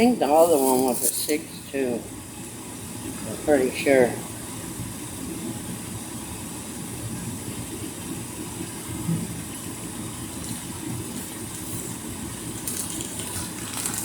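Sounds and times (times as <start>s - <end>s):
low rumbling background noise: 0.0s - 14.0s
crinkle: 0.4s - 1.4s, 12.5s - 14.0s.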